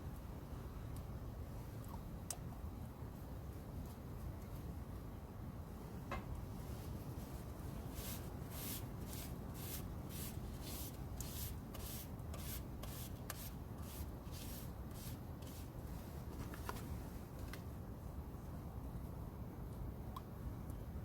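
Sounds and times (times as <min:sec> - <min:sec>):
brushing rubbing strokes: 0:07.2 - 0:15.8.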